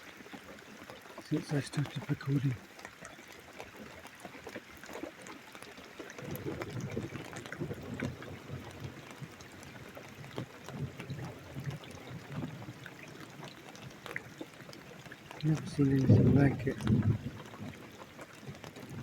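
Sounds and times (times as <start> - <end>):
rain pattering and dripping: 0.0 - 19.0
thunder rumbling: 15.6 - 17.5.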